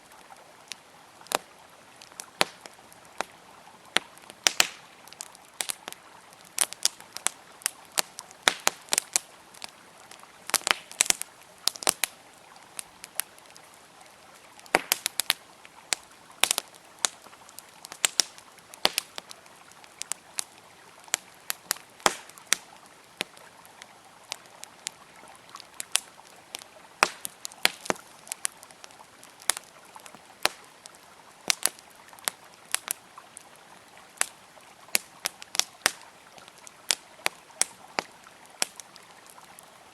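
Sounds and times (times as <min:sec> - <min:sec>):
campfire crackling and popping: 0:00.0 - 0:39.9
flowing river water: 0:00.0 - 0:39.9.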